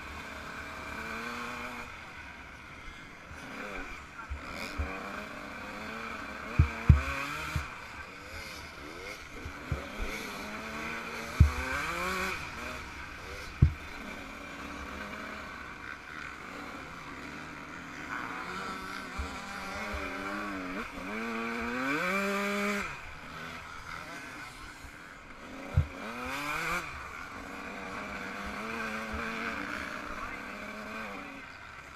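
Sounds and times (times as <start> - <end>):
two-stroke motorcycle engine revving: 0.0 - 31.9
sharp thumps: 6.6 - 7.8, 11.3 - 12.1, 13.5 - 13.9.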